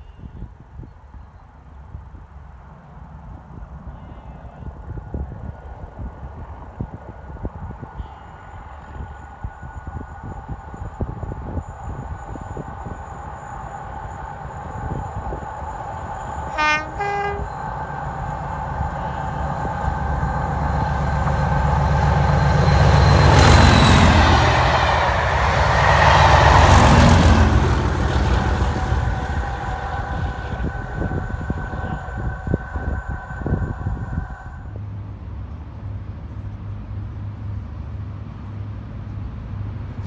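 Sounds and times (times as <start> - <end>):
train passing at speed: 0.0 - 40.0
two-tone train horn: 16.4 - 18.3, 28.6 - 34.7.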